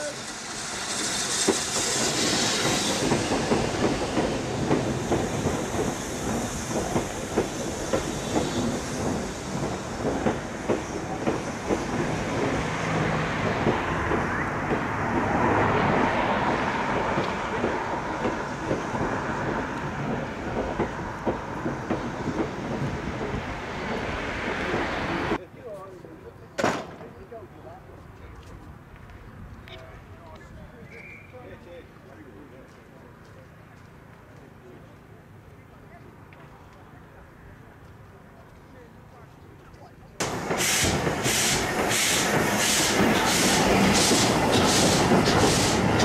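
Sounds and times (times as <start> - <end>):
steam hiss: 0.0 - 25.4, 40.2 - 46.0
train wheels clickety-clack: 0.2 - 25.4, 40.2 - 46.0.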